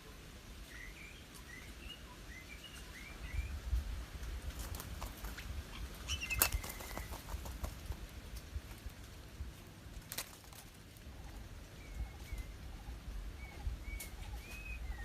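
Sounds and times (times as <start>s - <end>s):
wings flapping and rustling: 4.2s - 11.5s
small bird chirping: 5.3s - 7.7s, 11.2s - 15.0s.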